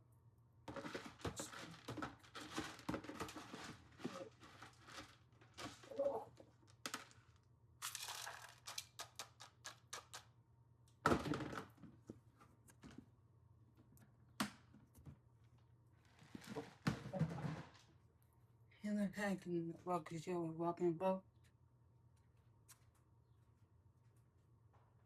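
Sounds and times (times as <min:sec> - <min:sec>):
rustling and crinkling: 0:00.7 - 0:09.5, 0:14.9 - 0:18.0.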